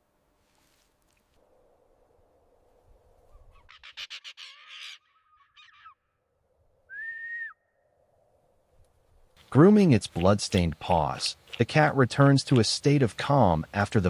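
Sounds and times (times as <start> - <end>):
vultures squawking: 3.3 - 6.1
whistled bird note: 6.9 - 8.0.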